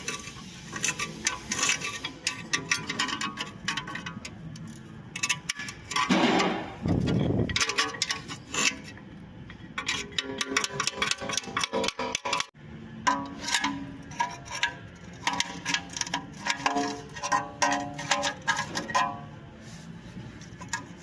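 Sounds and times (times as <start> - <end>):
brakes clicking and scraping: 0.0 - 12.6.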